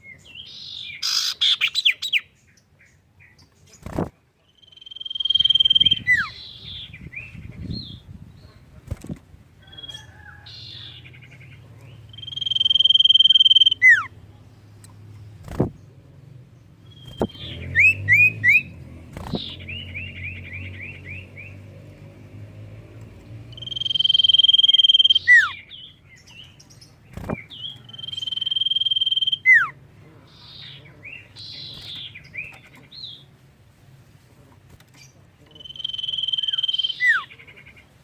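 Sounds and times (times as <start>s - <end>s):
bird chirping and trilling: 0.0s - 8.7s, 9.6s - 14.2s, 16.6s - 21.8s, 23.3s - 33.3s, 35.0s - 37.9s
bird high whistles: 12.2s - 14.1s, 23.5s - 25.6s, 27.9s - 29.7s.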